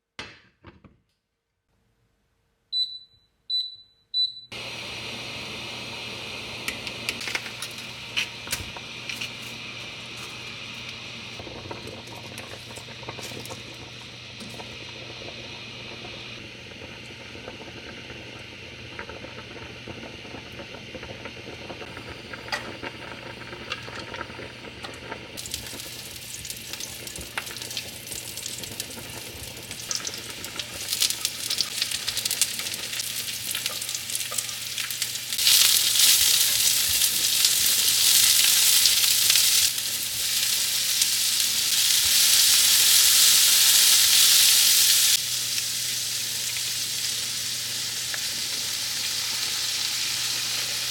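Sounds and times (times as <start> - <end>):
food sizzling in a pan: 21.6 - 50.9.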